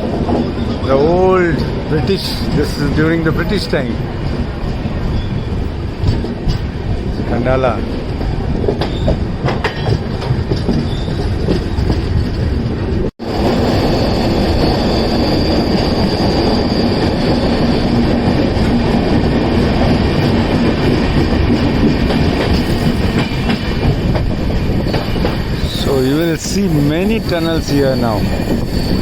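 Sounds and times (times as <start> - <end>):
train wheels rumbling on rail: 0.0 - 29.0
high wheel squeal: 5.0 - 5.8, 13.4 - 18.2, 24.8 - 29.0.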